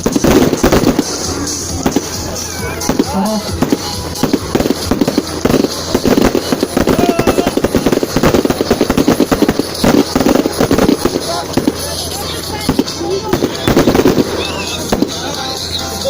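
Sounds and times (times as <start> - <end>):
fireworks crackling bangs: 0.0 - 16.0.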